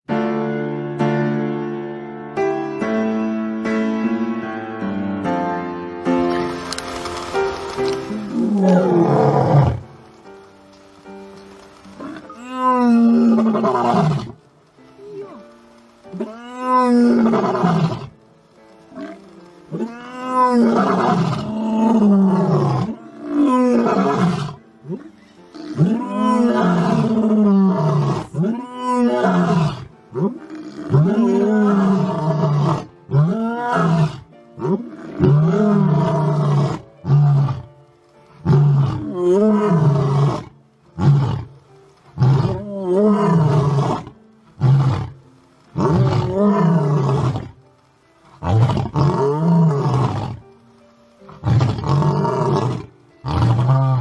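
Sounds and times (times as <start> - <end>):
lion roaring: 8.1 - 9.8, 12.0 - 14.4, 16.1 - 18.1, 18.9 - 37.7, 38.4 - 41.6, 42.2 - 47.6, 48.3 - 50.4, 51.4 - 54.0.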